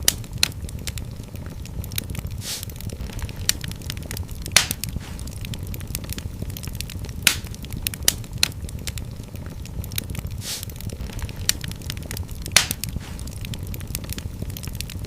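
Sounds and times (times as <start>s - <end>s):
fireplace fire crackling: 0.0s - 15.0s
low rumble of flames: 0.0s - 15.0s
brief hiss: 2.4s - 2.7s, 10.4s - 10.7s
sharp loud pops: 4.5s - 5.2s, 12.5s - 13.2s.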